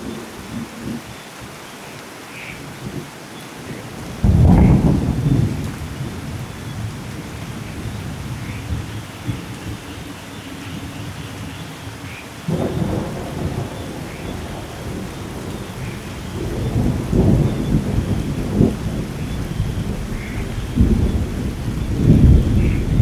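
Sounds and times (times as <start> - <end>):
steady rain: 0.0 - 23.0
thunder rumble: 4.1 - 10.2, 12.5 - 23.0.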